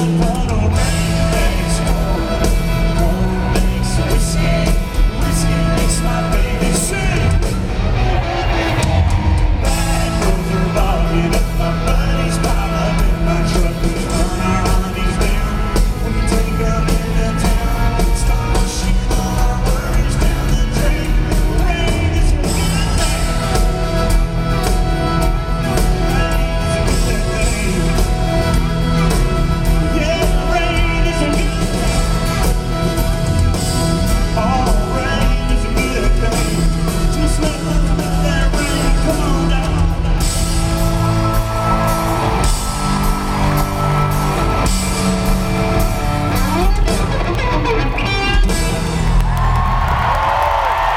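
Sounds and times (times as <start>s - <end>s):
person singing: 0.0s - 24.2s, 25.2s - 40.2s
live country-rock band playing: 0.0s - 50.9s.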